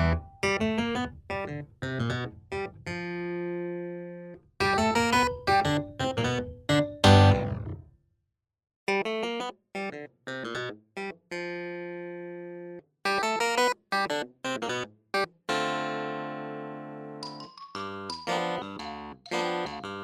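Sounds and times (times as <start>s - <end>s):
keyboard background music: 3.2s - 7.6s, 15.9s - 20.0s.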